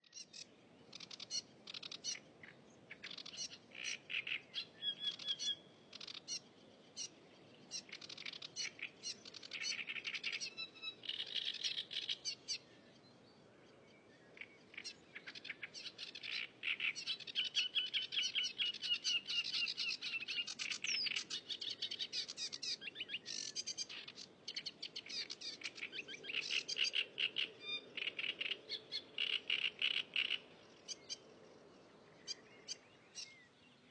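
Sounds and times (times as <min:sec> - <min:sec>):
songbird chirping and trilling: 0:00.0 - 0:33.9.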